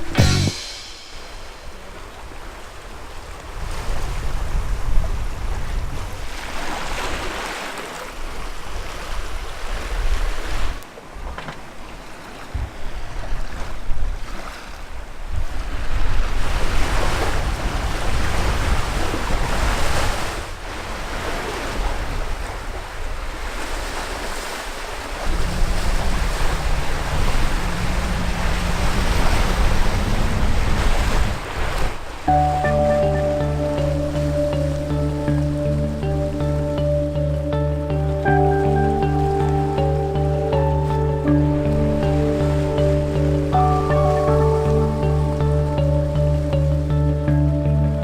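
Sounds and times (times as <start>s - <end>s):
wind buffeting microphone: 0.0s - 7.3s, 12.4s - 46.9s
sea water rushing along hulls: 0.0s - 47.5s
low steady hum: 25.2s - 31.4s.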